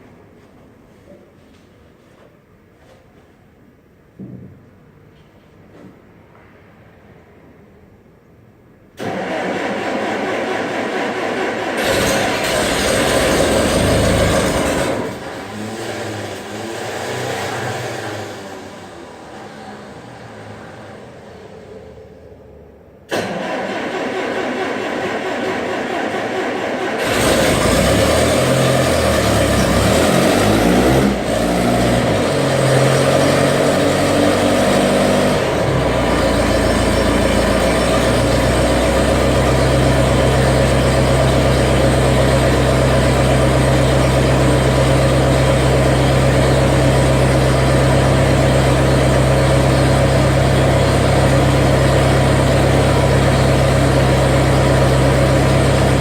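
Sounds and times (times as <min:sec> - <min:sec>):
skid steer engine starting: 0:09.0 - 0:21.7, 0:23.1 - 0:56.0.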